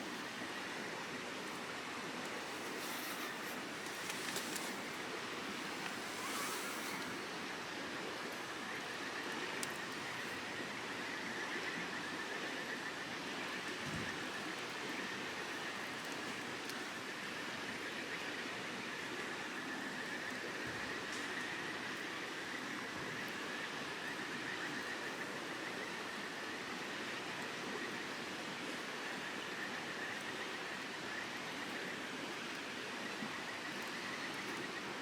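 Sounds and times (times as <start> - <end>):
flowing water rushing: 0.0 - 9.0.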